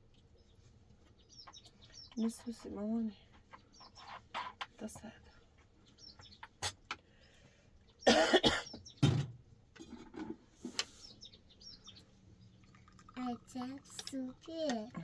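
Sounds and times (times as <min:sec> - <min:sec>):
woman coughing hard: 0:08.0 - 0:08.8.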